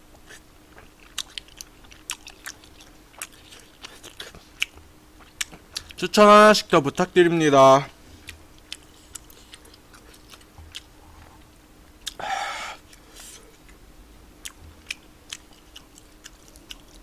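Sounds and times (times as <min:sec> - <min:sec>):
wet chewing mouth clicks: 0:00.1 - 0:06.0, 0:08.2 - 0:12.2, 0:14.4 - 0:17.0
breathy noise: 0:12.1 - 0:13.6.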